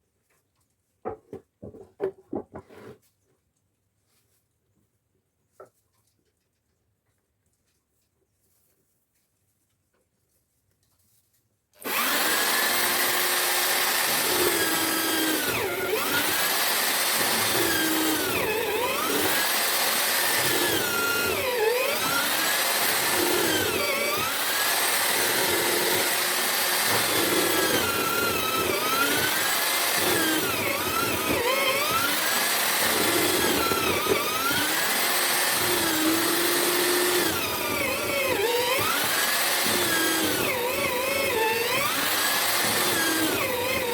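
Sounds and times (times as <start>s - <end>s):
chisel bit cutting into wood: 11.8s - 43.9s
electric drill motor running: 11.8s - 43.9s.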